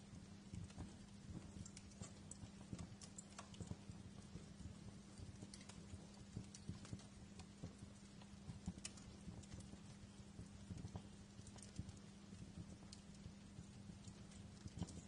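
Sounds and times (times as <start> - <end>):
steady low hum: 0.0 - 15.0
wood fire crackling: 0.0 - 15.0.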